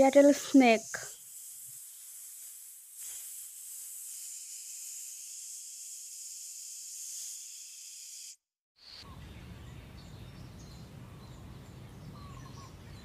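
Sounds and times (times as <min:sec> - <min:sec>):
snake hissing: 0:00.0 - 0:08.4.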